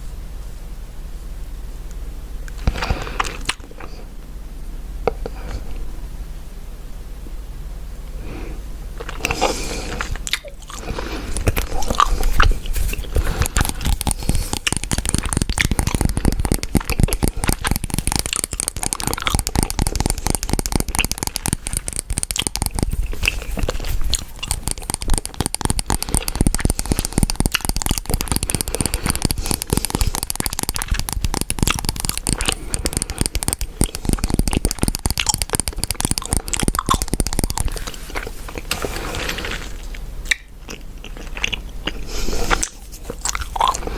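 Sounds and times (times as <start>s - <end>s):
chewing gum wet clicks: 9.0s - 38.9s, 39.7s - 43.9s.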